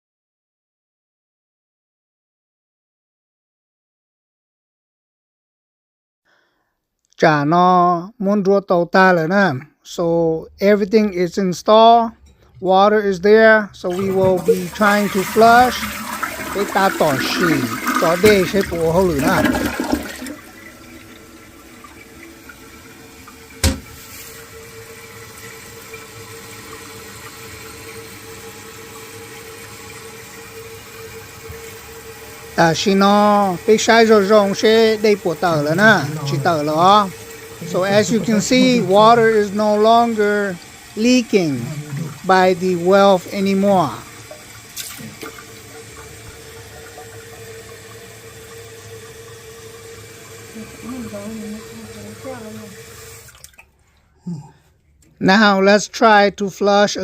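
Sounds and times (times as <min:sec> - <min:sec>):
toilet tank refilling: 0:13.8 - 0:54.0.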